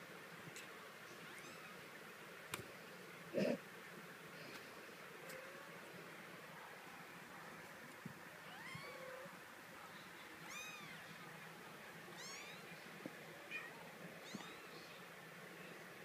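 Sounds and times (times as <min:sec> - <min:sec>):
kitten meowing: 0:01.3 - 0:01.8, 0:10.5 - 0:11.0, 0:12.2 - 0:12.6, 0:13.6 - 0:14.7.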